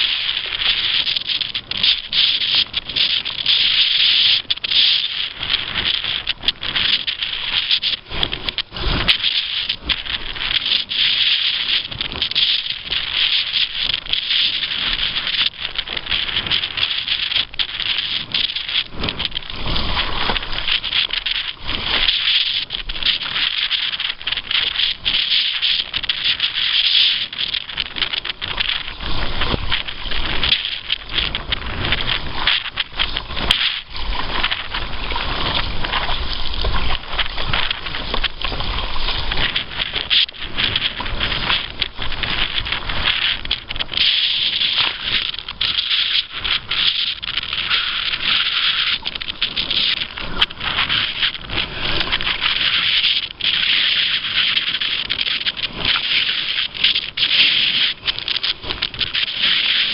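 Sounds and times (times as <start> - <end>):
water splashing against boat: 0.0 - 59.9
wind buffeting microphone: 0.0 - 59.9.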